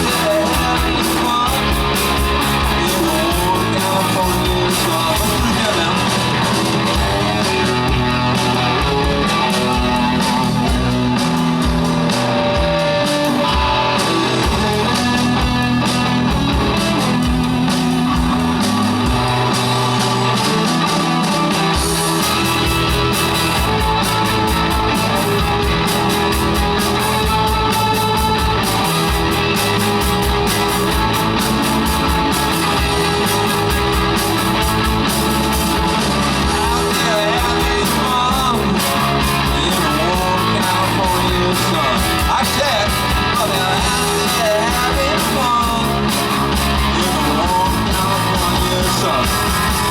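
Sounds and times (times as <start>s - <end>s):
bass guitar: 0.0s - 49.9s
electric guitar: 0.0s - 49.9s
steady drum beat: 0.0s - 49.9s.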